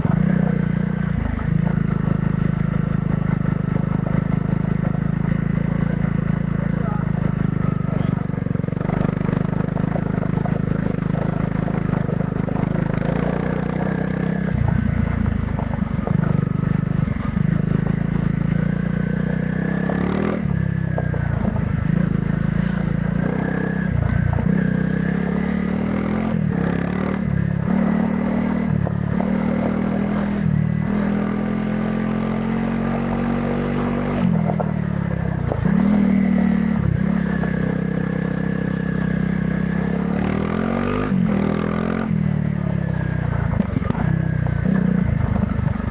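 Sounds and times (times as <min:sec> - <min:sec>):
motorcycle engine revving: 0:00.0 - 0:45.9
motorcycle knocking over rough ground: 0:09.2 - 0:16.6, 0:34.3 - 0:35.7, 0:43.2 - 0:45.9.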